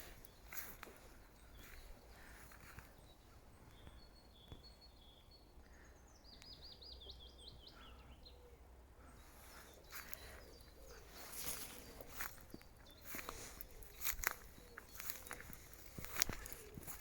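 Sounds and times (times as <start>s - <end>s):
faint songbird singing: 0.0s - 17.0s
faint rustle: 9.3s - 17.0s.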